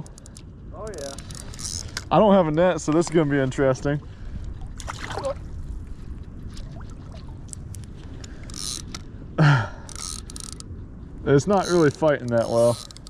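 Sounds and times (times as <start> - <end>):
water splashing and trickling: 0.9 - 8.8.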